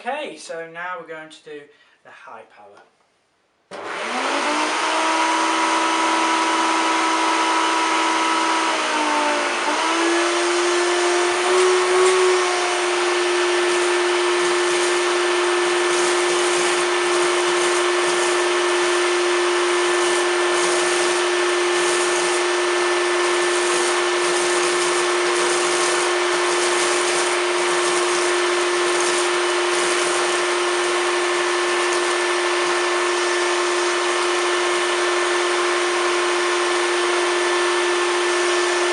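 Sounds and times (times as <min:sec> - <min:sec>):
vacuum cleaner motor whine: 0:03.7 - 0:38.9
cornflakes crackling: 0:23.3 - 0:31.0.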